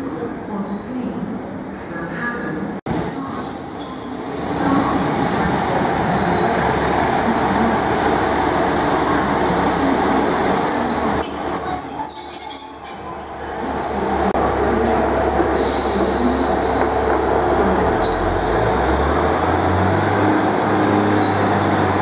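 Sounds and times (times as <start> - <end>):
train engines and wheels rumbling: 0.0 - 22.0
brake and wheel squeal: 10.6 - 14.2.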